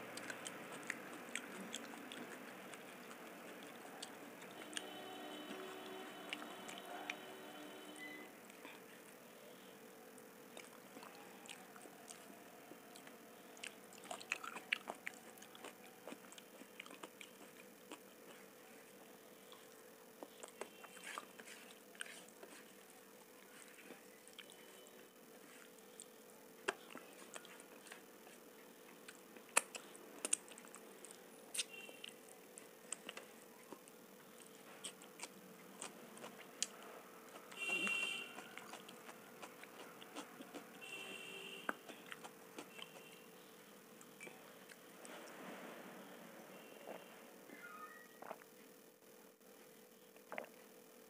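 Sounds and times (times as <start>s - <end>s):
person chewing food: 0.0s - 7.8s, 10.5s - 45.4s, 48.1s - 48.6s, 50.2s - 50.7s
faint steady hum: 0.0s - 51.0s
wet mouth clicks: 29.0s - 32.1s, 50.2s - 50.6s.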